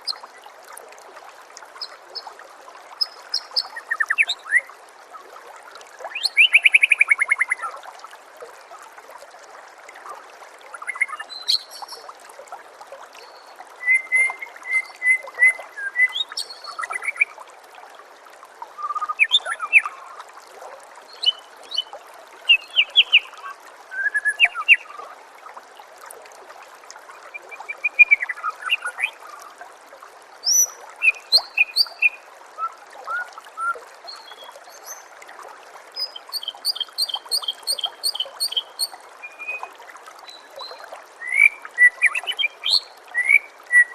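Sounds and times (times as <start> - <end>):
water trickling: 0.0 - 43.9
songbird whistling and chirping: 13.3 - 17.3, 18.8 - 19.9, 22.5 - 24.9, 27.6 - 29.2, 30.4 - 35.0, 36.0 - 39.7, 40.3 - 43.9.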